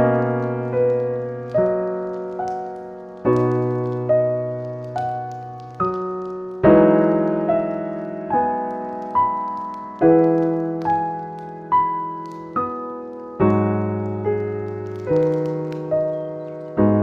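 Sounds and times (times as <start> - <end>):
slow gentle piano music: 0.0 - 17.0.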